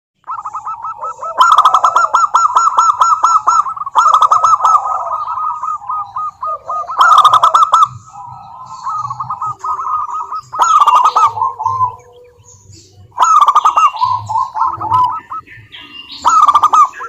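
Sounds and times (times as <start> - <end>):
doves cooing: 0.2 - 17.0.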